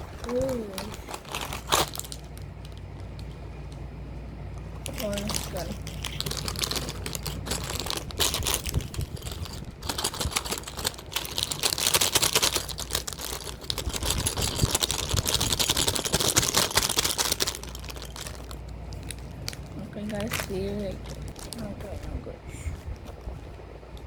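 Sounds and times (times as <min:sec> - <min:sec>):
packaging crinkling: 0:00.0 - 0:03.4, 0:04.6 - 0:24.0
plastic toy pieces clicking: 0:04.9 - 0:18.5.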